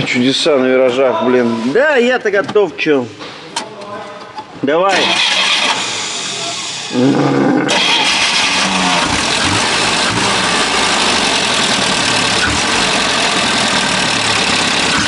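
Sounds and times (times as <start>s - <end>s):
car engine starting and idling: 4.9s - 15.0s.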